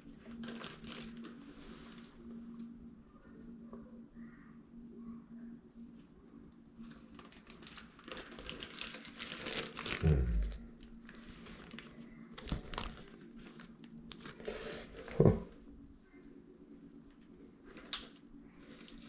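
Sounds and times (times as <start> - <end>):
packaging crinkling and rustling: 0.0 - 2.2, 6.8 - 15.2, 17.7 - 19.0.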